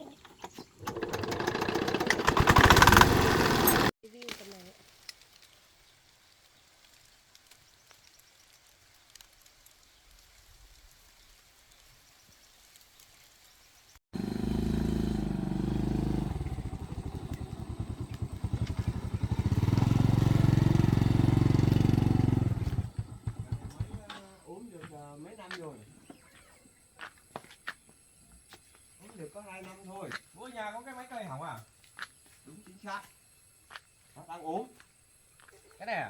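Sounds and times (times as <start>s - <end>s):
diesel engine running: 0.8s - 3.9s, 14.2s - 24.0s.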